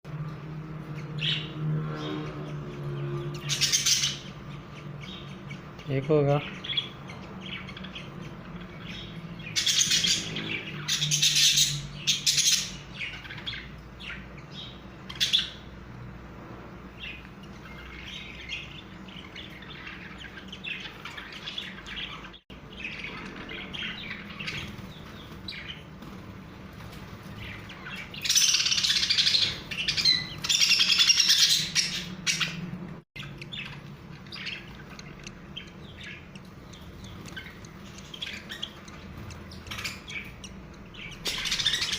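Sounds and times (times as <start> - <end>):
budgies chirping: 0.2 - 16.0, 16.8 - 41.9.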